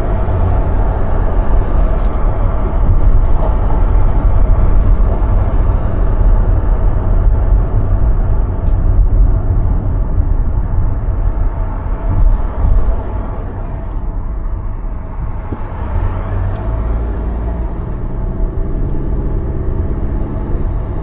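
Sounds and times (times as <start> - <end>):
car road and wind noise: 0.0 - 21.0.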